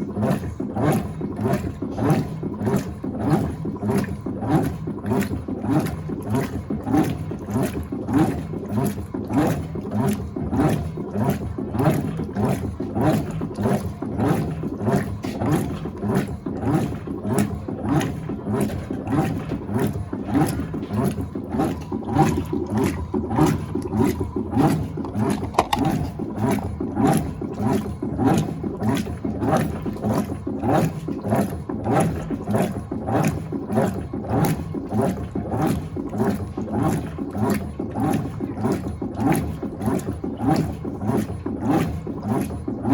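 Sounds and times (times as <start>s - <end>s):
washing machine agitating water: 0.0s - 42.9s.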